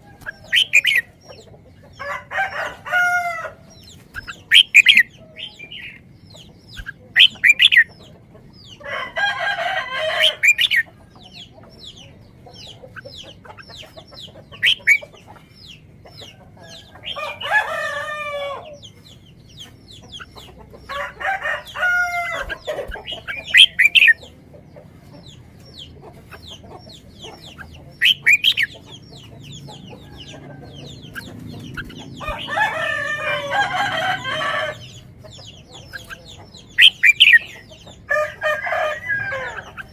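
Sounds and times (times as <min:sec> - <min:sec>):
chickens clucking and squawking: 0:00.0 - 0:39.9
rooster crowing: 0:02.0 - 0:03.6, 0:08.8 - 0:10.6, 0:16.6 - 0:18.8, 0:20.9 - 0:22.7, 0:32.2 - 0:34.9, 0:38.1 - 0:39.7.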